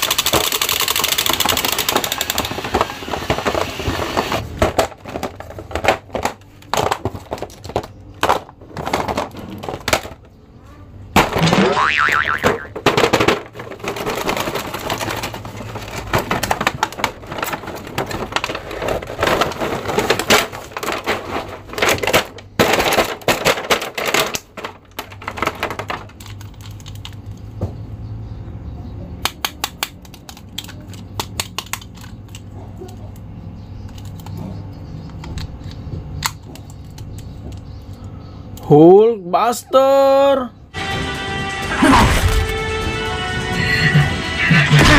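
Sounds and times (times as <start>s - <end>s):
plastic packaging crinkling: 12.9s - 27.2s
sharp small plastic clicks: 29.2s - 33.0s.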